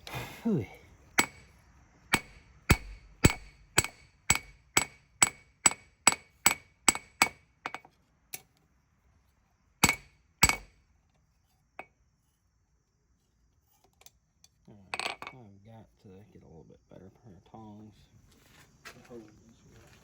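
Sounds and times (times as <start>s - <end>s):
hammer striking blade on anvil: 2.1s - 7.4s.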